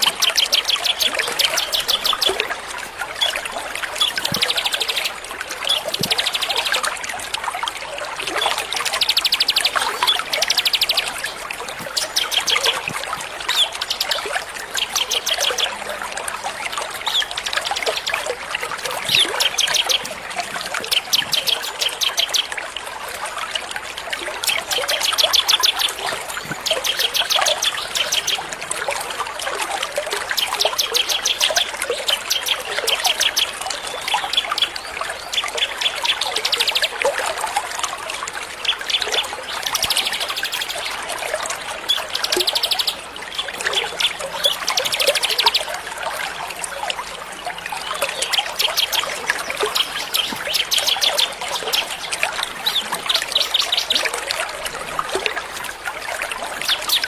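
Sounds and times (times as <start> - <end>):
songbirds trilling: 0.0 - 7.1, 8.2 - 15.9, 16.6 - 22.6, 29.9 - 37.1, 38.5 - 45.8, 47.7 - 54.8
water trickling: 0.0 - 57.0.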